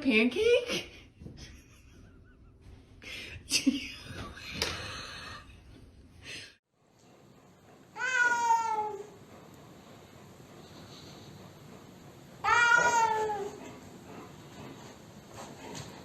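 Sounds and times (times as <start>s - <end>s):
cat meowing: 8.0s - 9.0s, 12.4s - 13.5s.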